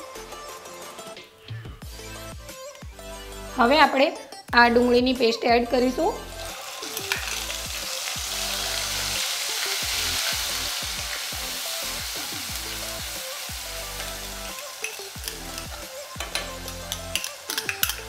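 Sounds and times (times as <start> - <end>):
onion paste sizzling in oil: 6.2 - 18.0
spatula clicking on pan: 14.8 - 18.0.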